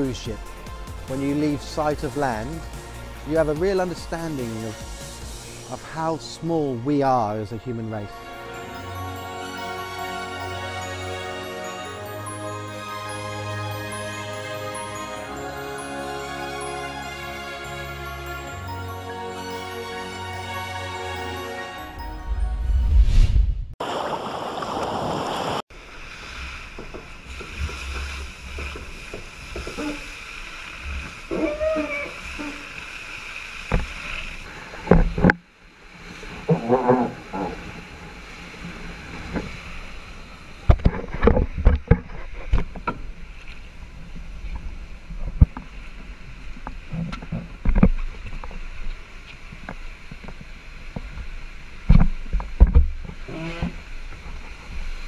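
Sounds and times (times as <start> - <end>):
water noise: 0.0 - 55.0.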